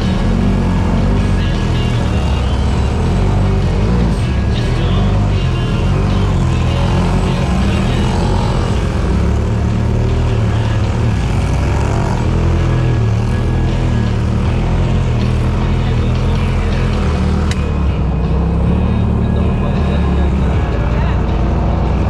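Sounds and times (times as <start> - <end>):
utility vehicle engine rumbling: 0.0 - 22.0.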